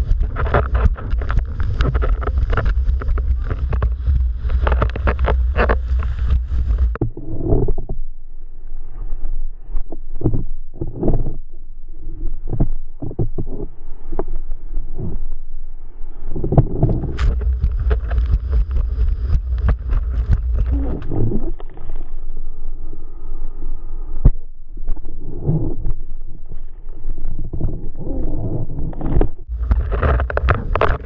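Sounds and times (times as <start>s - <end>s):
wind buffeting microphone: 0.0s - 7.0s, 16.4s - 21.6s.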